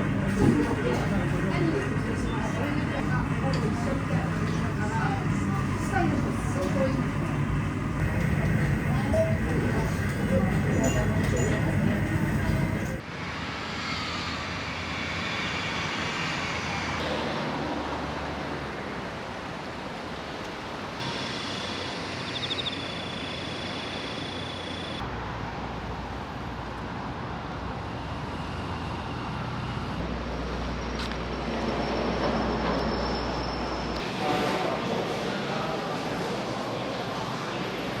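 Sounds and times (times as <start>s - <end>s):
vehicle running rumble: 0.0s - 13.0s.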